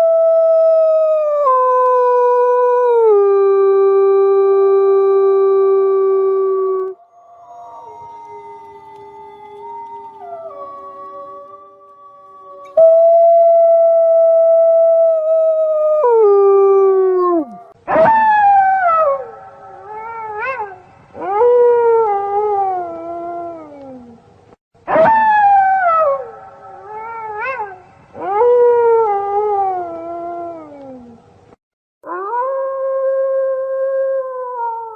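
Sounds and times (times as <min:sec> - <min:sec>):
wolves howling: 0:05.6 - 0:24.2.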